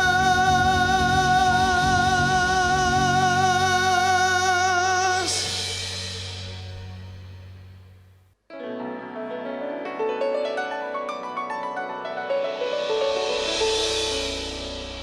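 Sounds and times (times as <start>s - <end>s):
man singing with vibrato: 0.0s - 6.4s
live band chord: 5.0s - 8.3s, 12.0s - 15.0s
cymbal crash: 5.1s - 8.2s, 12.2s - 15.0s.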